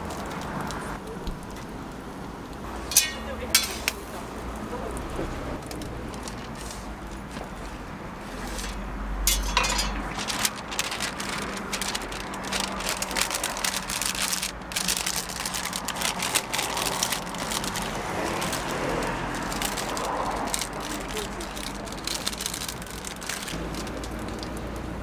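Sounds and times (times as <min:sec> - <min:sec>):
metal spatula clinks and scrapes: 0:02.9 - 0:04.0, 0:08.3 - 0:10.6.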